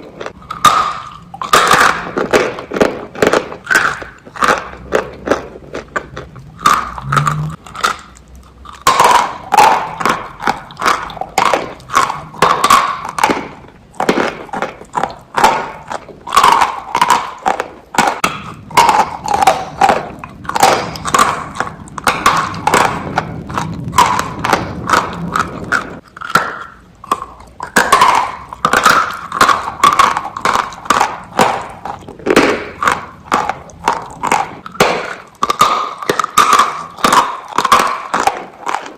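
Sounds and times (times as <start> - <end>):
crunching and chewing biscuits: 0.0 - 38.9.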